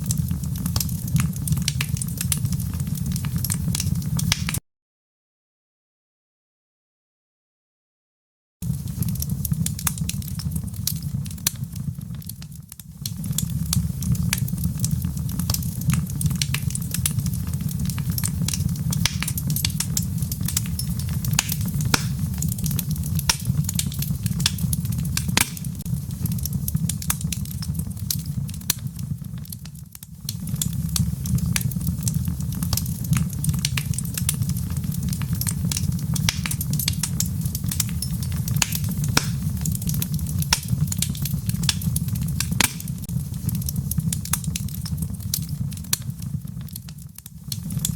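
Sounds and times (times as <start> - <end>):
sharp pops of fire: 0.0 - 4.6, 8.6 - 47.9
wood fire crackling: 0.0 - 4.6, 8.6 - 47.9.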